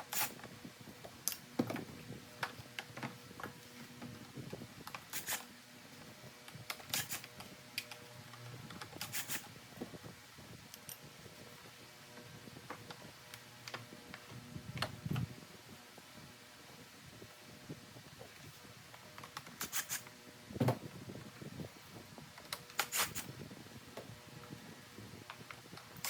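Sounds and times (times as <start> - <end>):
tools and parts clicking and clattering: 6.4 - 9.5.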